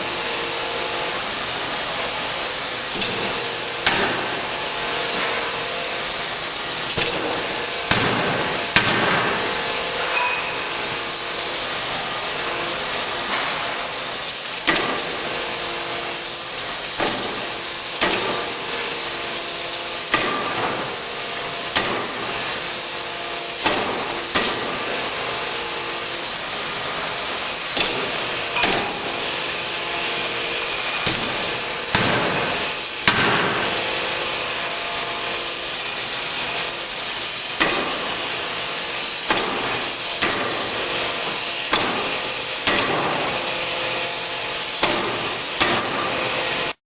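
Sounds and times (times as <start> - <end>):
forging hammer striking: 3.8 - 4.5, 6.9 - 11.0, 14.7 - 15.2, 20.1 - 20.9, 27.8 - 29.6, 30.7 - 33.9, 37.6 - 38.1, 39.3 - 43.5.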